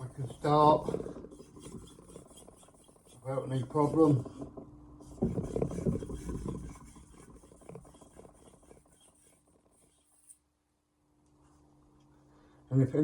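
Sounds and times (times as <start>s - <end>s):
knife scraping on whetstone: 0.0s - 10.4s.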